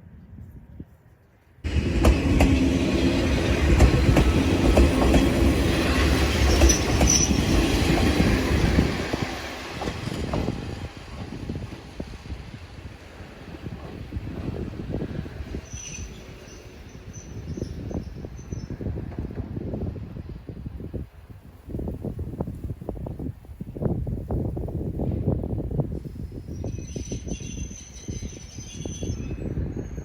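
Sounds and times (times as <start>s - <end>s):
railcar motor hum: 1.6s - 21.0s
wheels clicking over rail joints: 1.7s - 11.9s.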